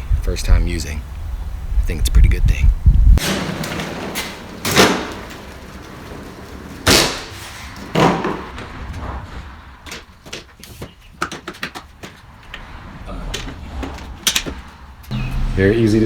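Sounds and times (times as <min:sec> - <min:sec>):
loud clunks: 0:03.2 - 0:10.5.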